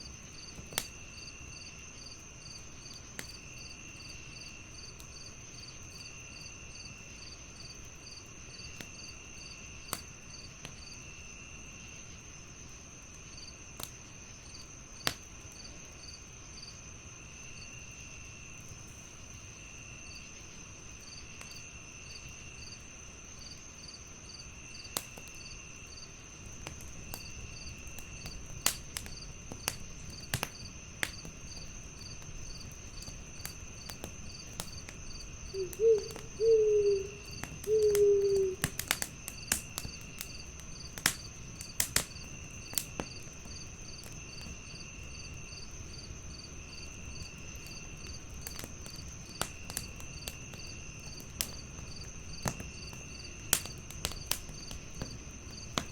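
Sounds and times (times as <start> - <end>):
wood fire crackling: 0.0 - 5.9, 20.2 - 55.9
crickets trilling: 0.0 - 55.9
insects chirping: 0.0 - 55.9
low insect trill: 31.5 - 39.9.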